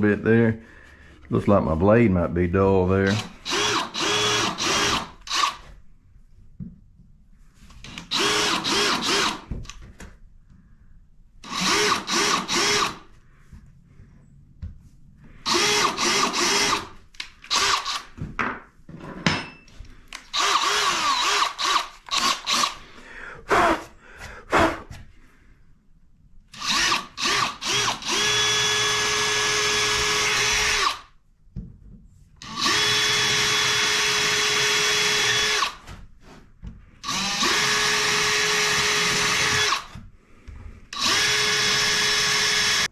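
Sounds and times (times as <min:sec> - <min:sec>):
power drill whining: 0:03.1 - 0:05.8, 0:07.8 - 0:09.8, 0:11.4 - 0:13.2, 0:15.4 - 0:18.2, 0:20.1 - 0:22.9, 0:26.5 - 0:31.1, 0:32.4 - 0:35.8, 0:37.0 - 0:40.0, 0:40.9 - 0:42.9.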